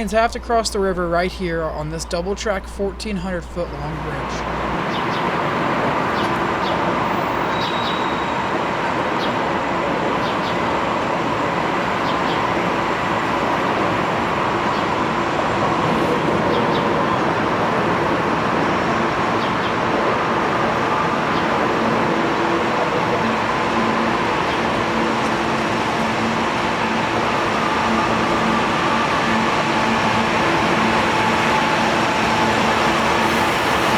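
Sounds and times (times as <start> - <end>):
train wheels on rails: 4.2 - 33.9.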